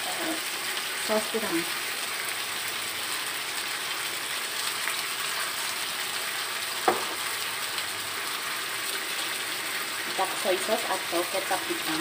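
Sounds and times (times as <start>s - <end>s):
food sizzling in a wok: 0.0s - 12.0s
sharp knock: 6.8s - 7.2s.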